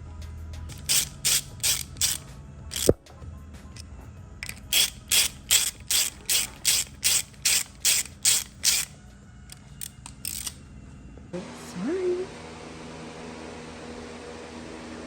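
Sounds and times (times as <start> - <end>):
ratchet wrench clicking: 0.7 - 3.0, 3.7 - 10.6.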